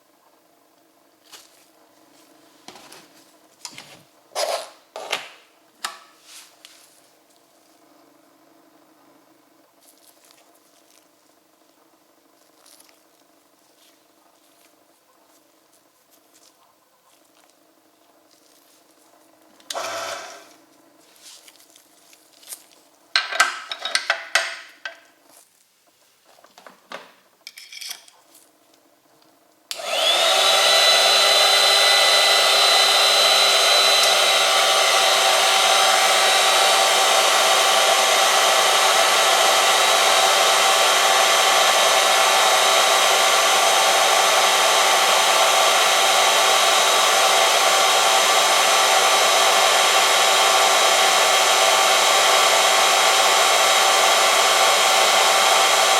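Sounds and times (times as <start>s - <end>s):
machine motor whining: 19.7s - 20.6s, 29.7s - 55.9s.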